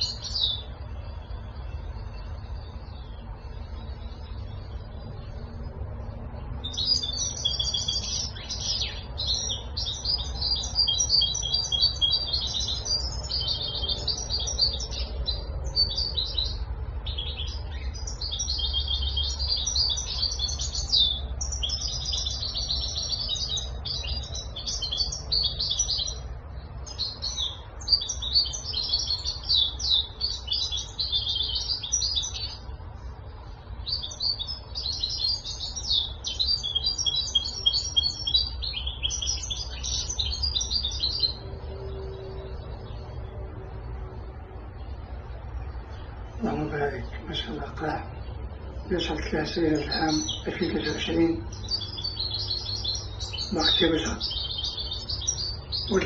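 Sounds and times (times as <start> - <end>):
low steady rumble: 0.0 - 37.0, 38.5 - 52.2
goldfinch twittering song: 0.0 - 43.3, 44.7 - 56.0.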